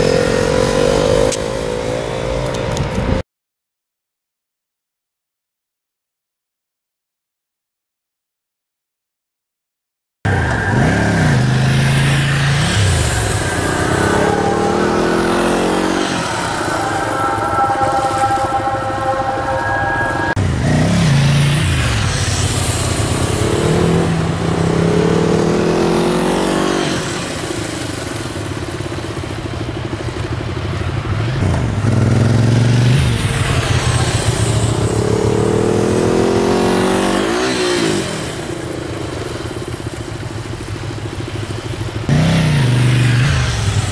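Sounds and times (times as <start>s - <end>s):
motorcycle engine revving: 0.0s - 3.2s, 10.3s - 43.9s.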